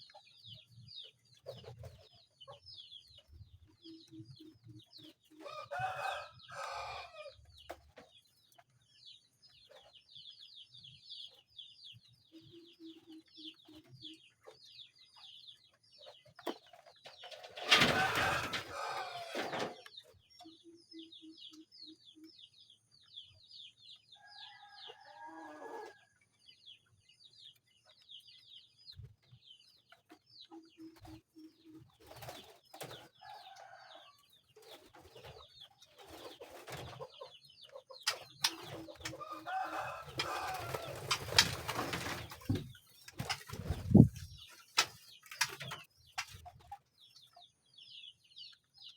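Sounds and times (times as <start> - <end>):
birds chirping: 0.0 - 48.9
chickens clucking: 0.0 - 48.9.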